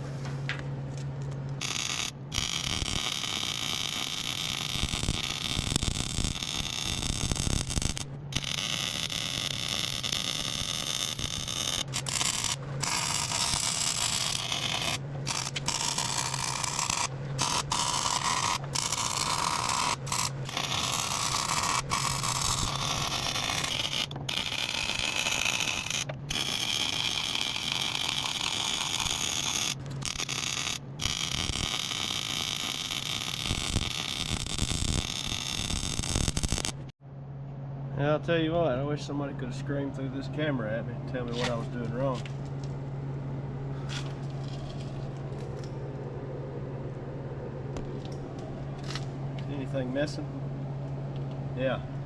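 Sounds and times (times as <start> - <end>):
low hum: 0.0 - 52.0
welding arc crackling: 1.6 - 36.9.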